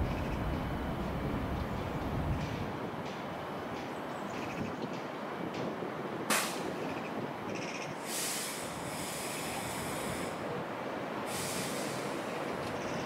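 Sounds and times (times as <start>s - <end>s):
train rumble: 0.0s - 13.0s
sharp clank: 6.3s - 6.7s
hiss of released air: 8.0s - 10.4s, 11.2s - 12.3s.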